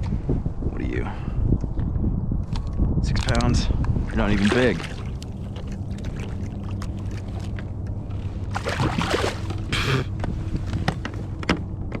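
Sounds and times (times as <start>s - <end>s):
steady low hum: 3.7s - 12.0s.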